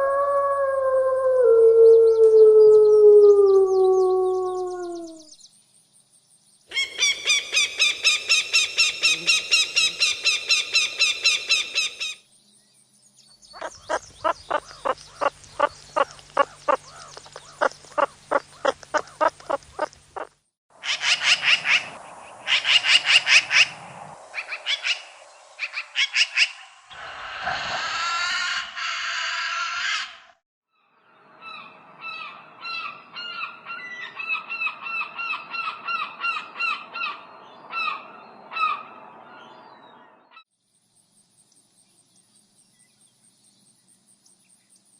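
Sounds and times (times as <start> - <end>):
animal chirps: 6.7 - 12.2.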